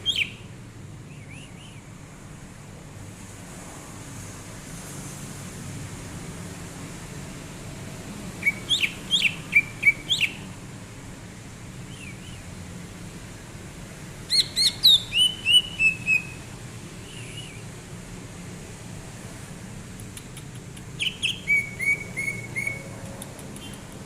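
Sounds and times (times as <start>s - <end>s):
bird whistling song: 0.0s - 0.4s, 1.1s - 1.8s, 8.4s - 10.4s, 11.9s - 12.4s, 14.3s - 16.4s, 17.0s - 17.7s, 21.0s - 22.9s.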